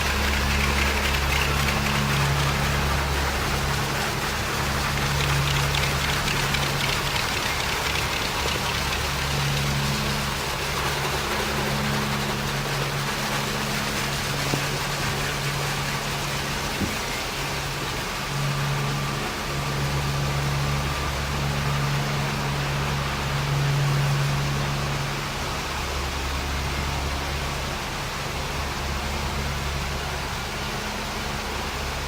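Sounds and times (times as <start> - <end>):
water spray: 0.0 - 11.2
low machine hum: 0.0 - 32.0.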